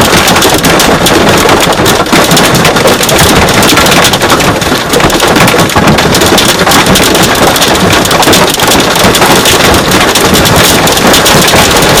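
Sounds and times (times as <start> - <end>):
hail and rain on truck roof: 0.0 - 12.0.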